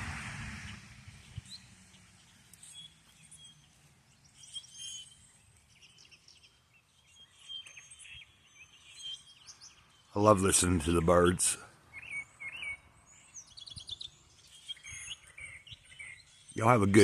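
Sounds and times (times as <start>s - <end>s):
birds chirping: 0.6s - 17.0s.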